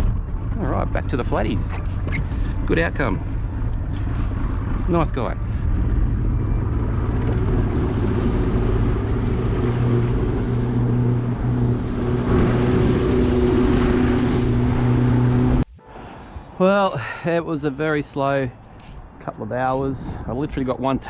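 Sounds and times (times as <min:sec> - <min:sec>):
wind: 0:00.0 - 0:21.0
outboard motor running: 0:01.8 - 0:15.6
water noise: 0:06.8 - 0:16.5.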